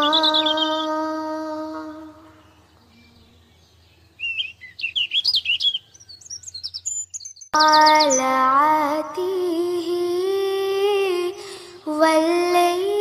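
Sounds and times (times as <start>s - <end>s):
small birds twittering: 0.0s - 1.2s, 2.0s - 8.5s.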